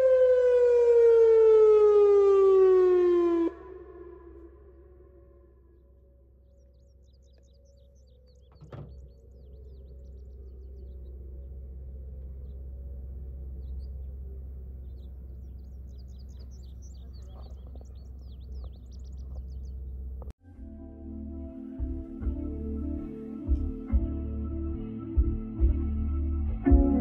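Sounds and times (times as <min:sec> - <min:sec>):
faint electronic siren: 0:00.0 - 0:16.8
low rumble: 0:02.9 - 0:27.0
small birds chirping: 0:06.2 - 0:20.3.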